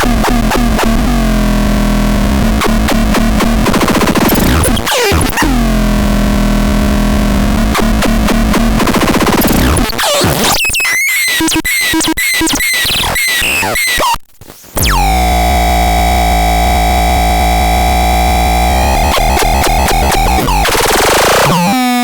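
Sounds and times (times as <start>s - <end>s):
long buzzy synth tone with bass: 0.0s - 9.7s, 14.8s - 21.6s.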